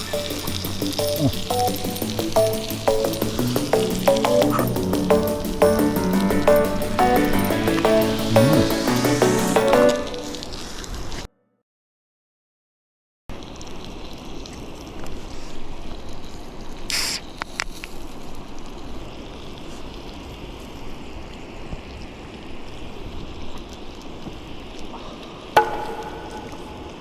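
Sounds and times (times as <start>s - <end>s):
brief hiss: 16.9s - 17.8s.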